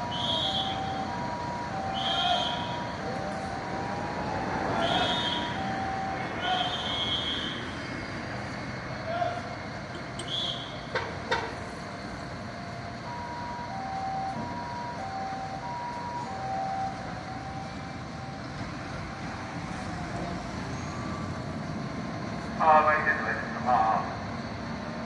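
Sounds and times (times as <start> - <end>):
two-tone electronic siren: 0.0 - 9.6, 11.7 - 21.5
traffic noise: 0.0 - 25.0.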